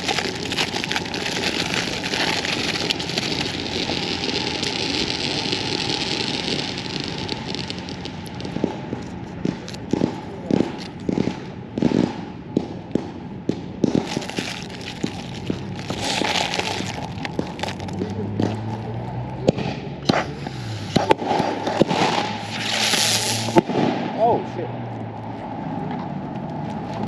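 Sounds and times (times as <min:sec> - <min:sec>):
fireworks hissing spray: 0:00.0 - 0:11.0, 0:13.9 - 0:24.1
firework pops and crackles: 0:00.0 - 0:24.5, 0:25.9 - 0:27.0.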